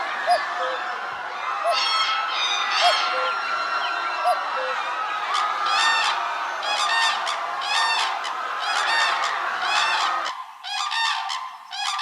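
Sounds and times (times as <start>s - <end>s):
geese honking: 1.6s - 3.4s, 4.2s - 12.0s.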